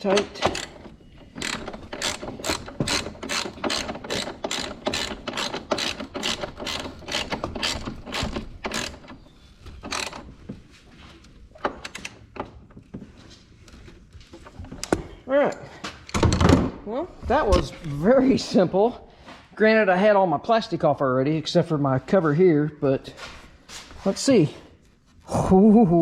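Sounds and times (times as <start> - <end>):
socket ratchet clicking: 0.1 - 9.1, 9.8 - 10.2.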